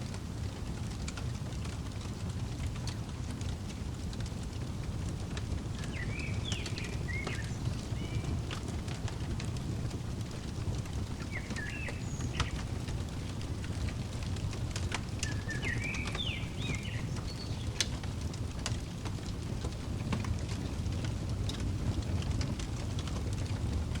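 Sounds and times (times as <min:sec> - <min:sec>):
fireplace crackling and popping: 0:00.0 - 0:24.0
bird chirps: 0:05.8 - 0:17.9.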